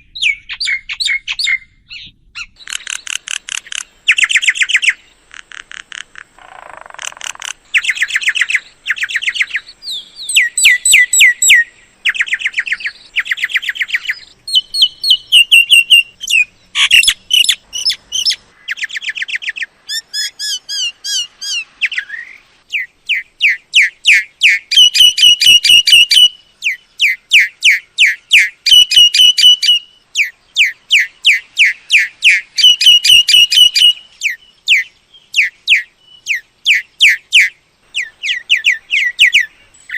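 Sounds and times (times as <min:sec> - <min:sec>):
myna calling: 0:02.5 - 0:22.1.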